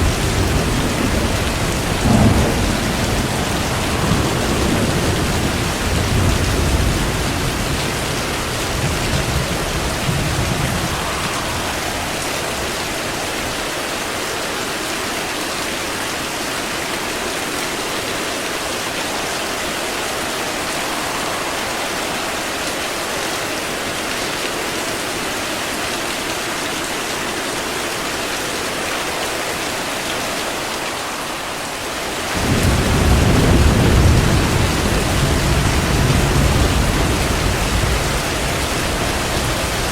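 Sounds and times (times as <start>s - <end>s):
thunder rumbling: 0.0s - 13.7s, 19.3s - 23.8s, 30.3s - 39.9s
heavy rain: 0.0s - 39.9s.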